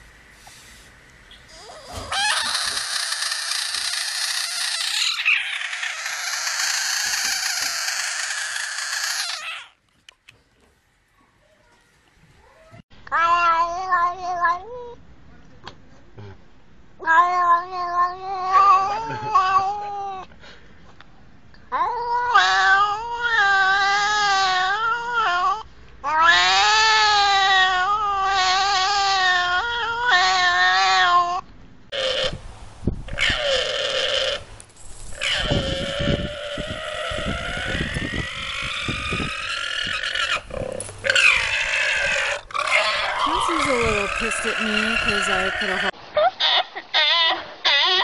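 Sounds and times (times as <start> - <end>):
animal screaming: 1.5 - 9.8, 21.8 - 32.4, 33.1 - 34.4, 35.1 - 48.0
cat yowling: 12.4 - 15.0, 17.0 - 20.2, 21.7 - 31.4.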